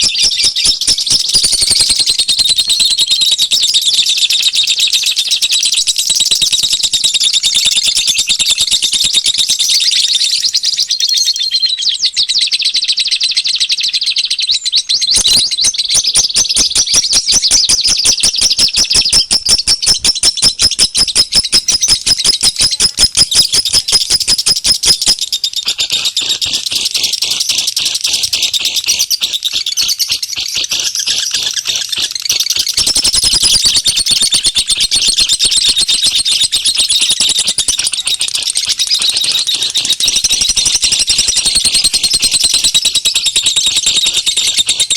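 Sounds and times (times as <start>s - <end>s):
small birds chirping and twittering: 0.0s - 44.9s
fast clicking rattle: 15.2s - 43.6s.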